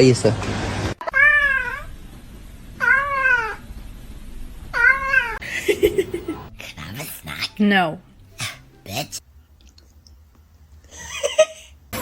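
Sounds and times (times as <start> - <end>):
cat meowing: 1.0 - 1.9, 2.8 - 3.6, 4.8 - 5.4.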